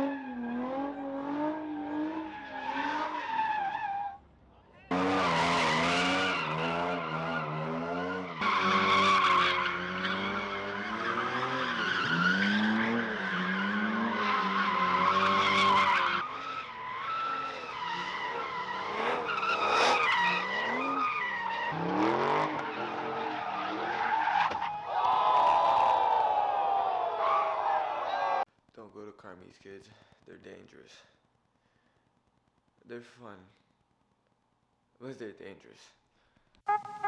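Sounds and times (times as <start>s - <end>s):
car tyres squealing: 0.0s - 4.2s, 4.9s - 28.4s.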